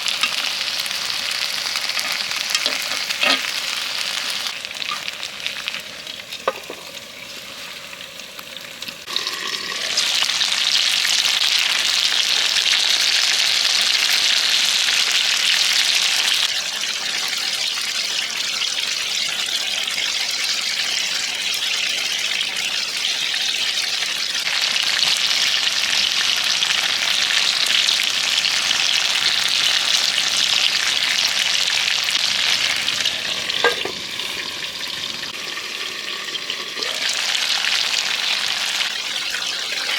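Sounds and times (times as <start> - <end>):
food sizzling on hot plate: 0.0 - 39.9.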